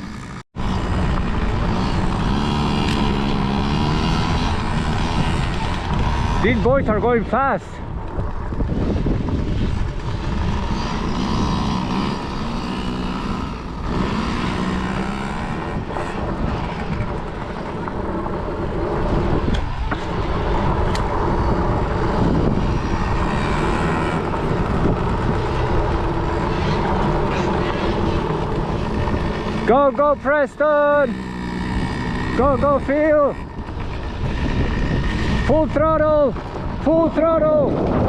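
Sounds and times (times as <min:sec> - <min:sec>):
dirt bike engines revving: 0:00.0 - 0:38.0.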